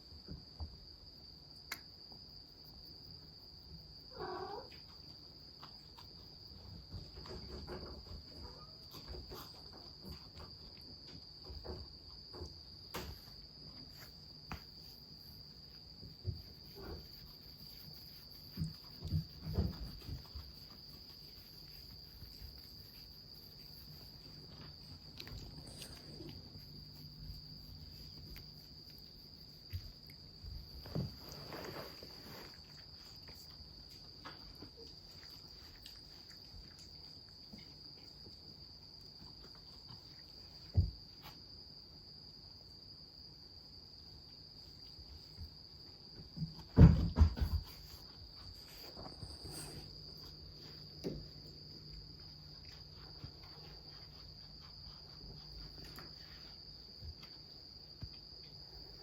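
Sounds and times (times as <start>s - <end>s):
soft bumps and knocks: 18.3s - 20.8s, 29.6s - 32.6s, 46.1s - 49.5s.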